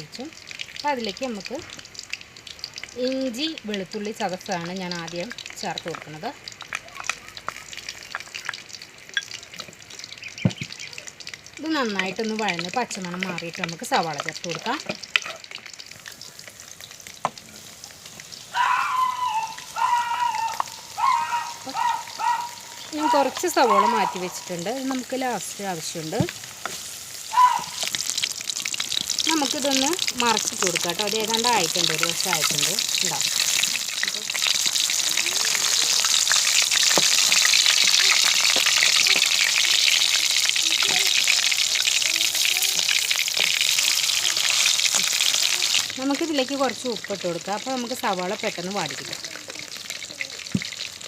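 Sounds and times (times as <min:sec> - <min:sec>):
garlic sizzling in hot oil: 0:00.0 - 0:51.0
held pitched calls: 0:18.4 - 0:25.1, 0:27.2 - 0:28.4.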